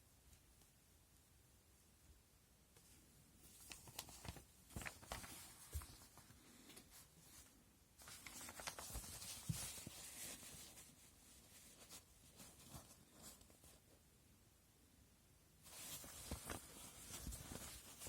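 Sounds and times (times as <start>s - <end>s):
packaging rustling: 8.0s - 10.9s, 15.7s - 18.0s.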